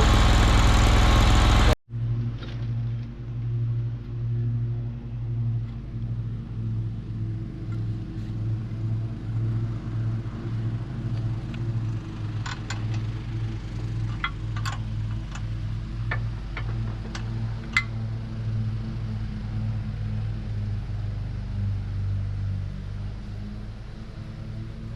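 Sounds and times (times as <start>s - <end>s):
small engine humming: 0.0s - 1.8s, 5.7s - 24.9s
sharp clicks and clanks: 12.4s - 13.2s, 14.0s - 18.0s.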